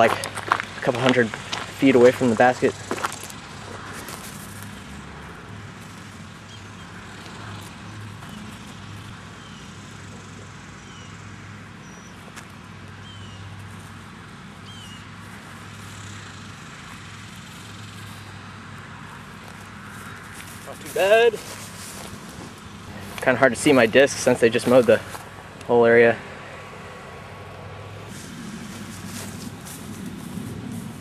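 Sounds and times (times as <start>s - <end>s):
distant traffic rumble: 0.0s - 31.0s
bird chirps: 6.4s - 7.0s, 9.4s - 9.8s, 10.8s - 11.2s, 11.8s - 12.3s, 13.0s - 13.5s, 14.6s - 15.1s.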